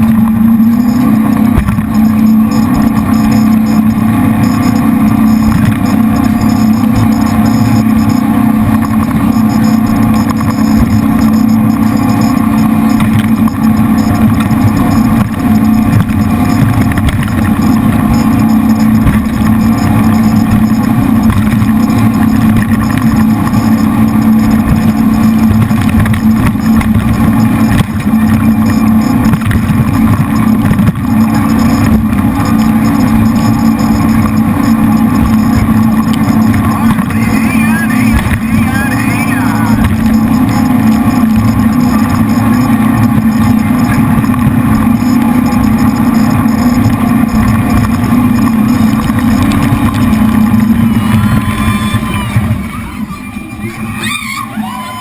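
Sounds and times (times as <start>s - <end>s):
boat engines droning: 0.0s - 55.0s.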